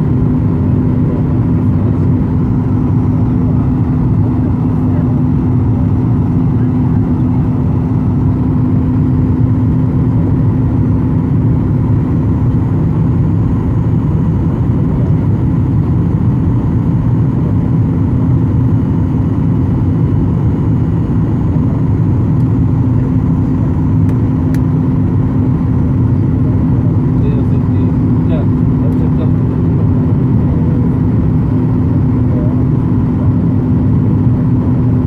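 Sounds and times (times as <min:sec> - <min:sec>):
jet engine cabin rumble: 0:00.0 - 0:35.0.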